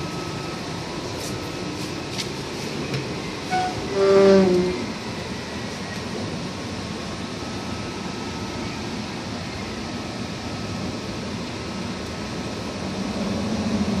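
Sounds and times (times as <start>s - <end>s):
machine fan-like rushing hum: 0.0s - 14.0s.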